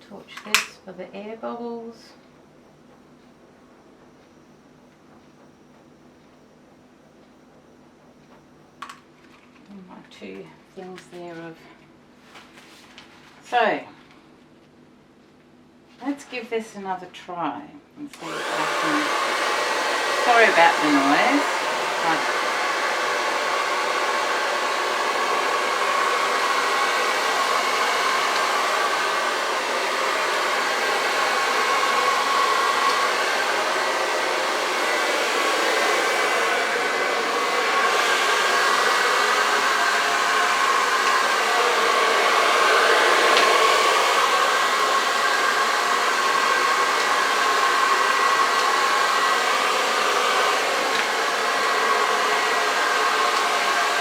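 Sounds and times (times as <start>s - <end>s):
hair dryer blowing: 18.1s - 54.0s.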